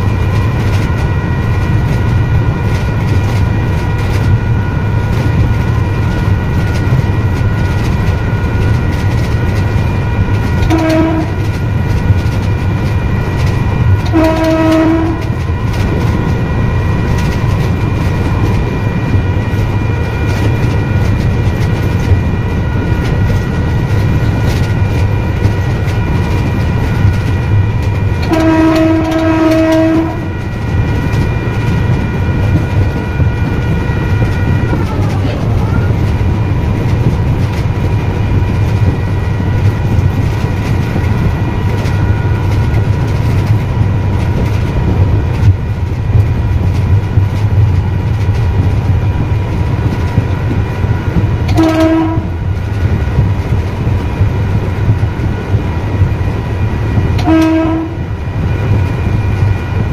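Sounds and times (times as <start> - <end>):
train rumble and wheel clatter: 0.0 - 59.9
train horn blast: 10.5 - 11.6, 14.0 - 15.4, 28.2 - 30.6, 51.5 - 52.4, 57.2 - 58.1.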